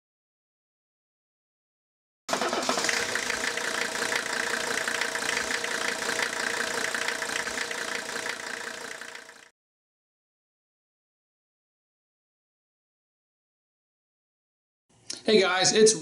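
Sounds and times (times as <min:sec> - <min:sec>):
diesel engine idling: 0:02.3 - 0:09.5.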